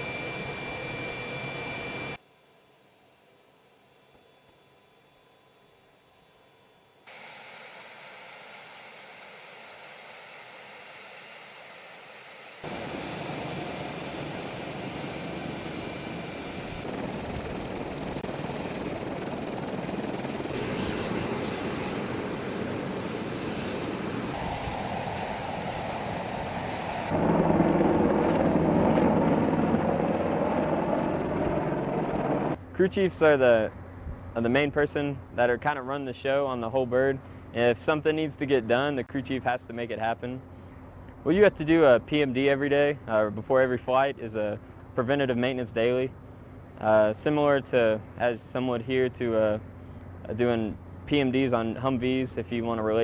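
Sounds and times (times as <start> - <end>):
helicopter engine and rotor noise: 0.0 - 53.0
high whine falling in pitch: 24.4 - 32.6.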